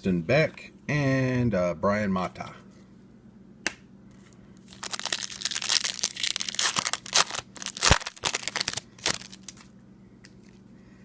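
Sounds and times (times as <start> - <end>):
foil wrapper crinkling and tearing: 4.6 - 9.7.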